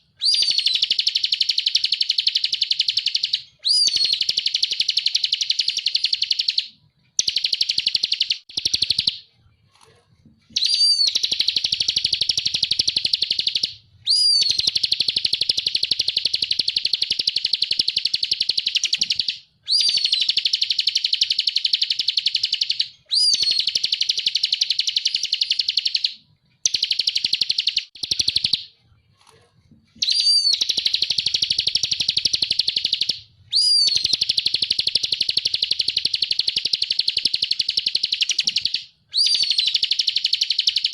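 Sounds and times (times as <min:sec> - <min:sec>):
bird rising-falling whistle: 0:00.2 - 0:06.6, 0:10.6 - 0:17.3, 0:19.7 - 0:26.0, 0:30.0 - 0:37.4, 0:38.1 - 0:40.9.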